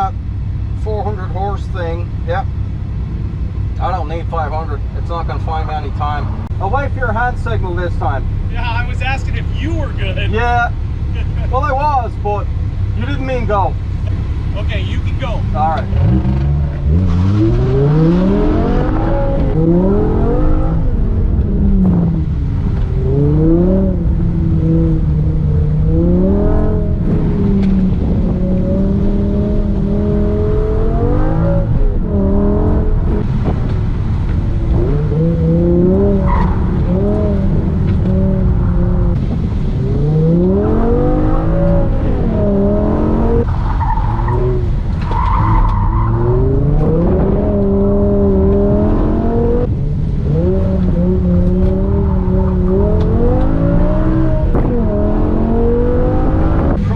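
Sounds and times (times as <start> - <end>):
car engine revving: 0.0 - 56.9
tires squealing: 14.6 - 49.7, 50.3 - 56.9.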